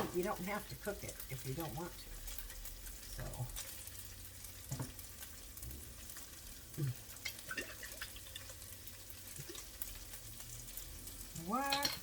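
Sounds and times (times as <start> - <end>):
chicken sizzling in a frying pan: 0.0 - 12.0.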